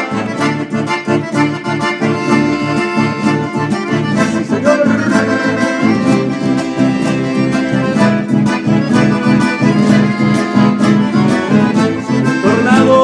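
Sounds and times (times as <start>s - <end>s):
accordion: 0.0s - 13.0s
strummed guitar: 0.0s - 13.0s.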